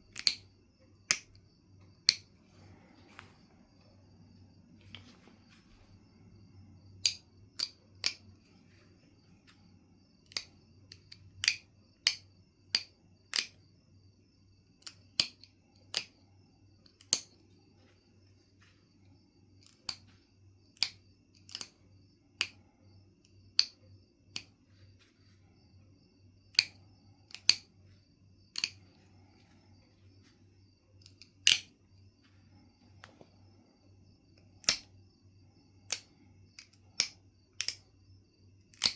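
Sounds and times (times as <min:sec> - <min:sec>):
flint knapping clicks: 0:00.1 - 0:01.4, 0:02.0 - 0:02.3, 0:07.0 - 0:08.6, 0:10.2 - 0:13.7, 0:14.8 - 0:16.2, 0:16.8 - 0:17.4, 0:19.6 - 0:20.1, 0:20.7 - 0:21.8, 0:22.4 - 0:22.6, 0:23.5 - 0:24.6, 0:26.5 - 0:27.7, 0:28.5 - 0:29.0, 0:31.0 - 0:31.8, 0:34.4 - 0:35.0, 0:35.8 - 0:37.9, 0:38.7 - 0:38.9.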